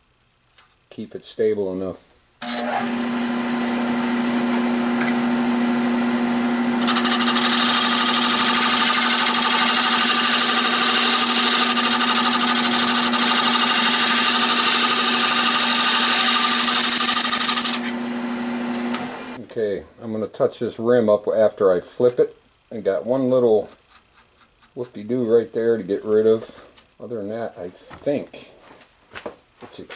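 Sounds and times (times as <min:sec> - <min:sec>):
lathe motor hum: 0:02.4 - 0:19.4
turning tool scraping wood: 0:06.7 - 0:19.4.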